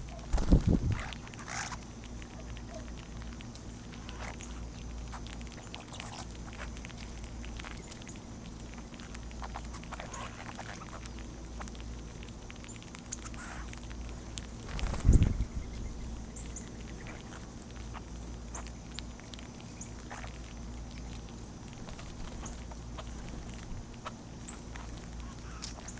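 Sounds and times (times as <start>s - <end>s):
birds pecking and scratching: 0.0s - 25.9s
steady low hum: 0.0s - 25.9s.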